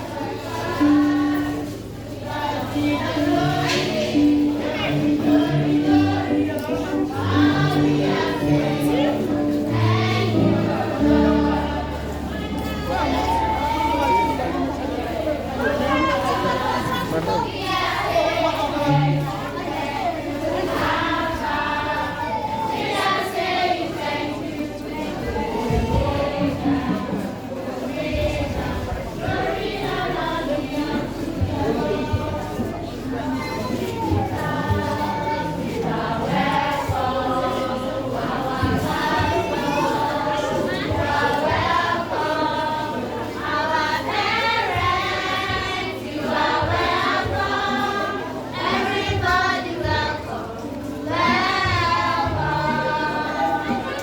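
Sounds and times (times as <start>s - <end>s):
children singing: 0.0s - 54.0s.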